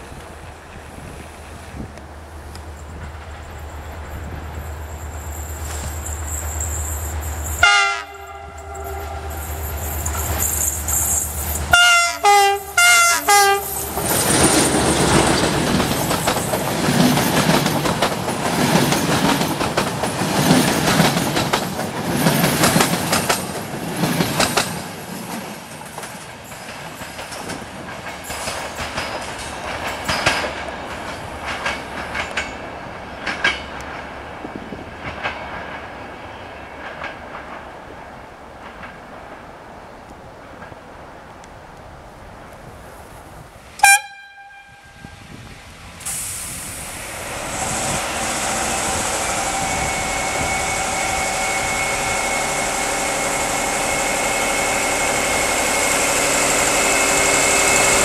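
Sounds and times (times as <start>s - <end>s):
wheels clacking over rail joints: 0.1s - 41.5s
locomotive horn blasts: 7.6s - 9.9s, 11.7s - 13.8s, 43.8s - 45.2s.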